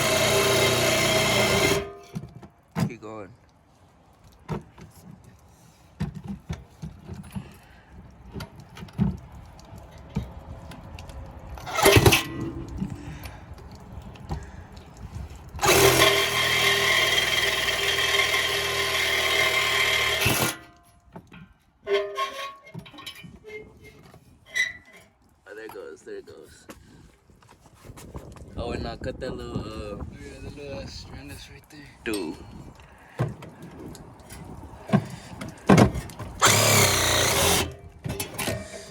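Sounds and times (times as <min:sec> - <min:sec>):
power cutting tool cutting metal: 0:00.0 - 0:02.1, 0:11.7 - 0:12.5, 0:15.6 - 0:20.7, 0:36.4 - 0:37.8
metal knocks and clanks: 0:21.2 - 0:25.1, 0:34.9 - 0:38.9.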